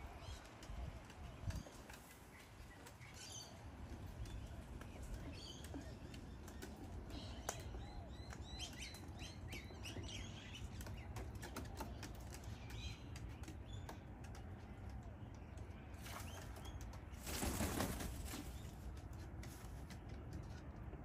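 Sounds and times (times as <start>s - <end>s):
bird chirps and twittering: 1.2s - 14.4s.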